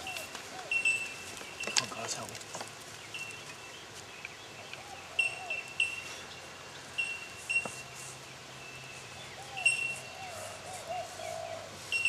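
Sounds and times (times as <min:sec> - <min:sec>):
high clear bird calls: 0:00.0 - 0:02.2, 0:02.9 - 0:12.0
lower curving bird calls: 0:00.0 - 0:02.2, 0:02.9 - 0:12.0
rural background: 0:00.0 - 0:12.0.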